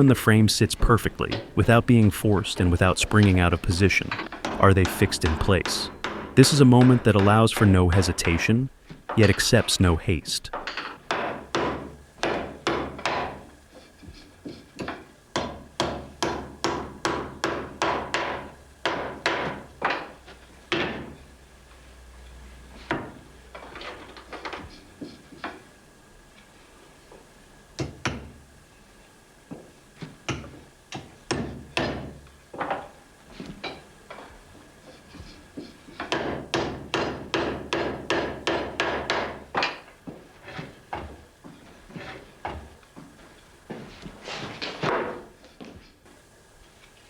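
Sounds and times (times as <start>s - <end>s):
hammer striking wood: 4.1s - 7.4s, 10.8s - 13.5s, 14.8s - 21.2s, 29.5s - 32.8s, 36.0s - 39.9s.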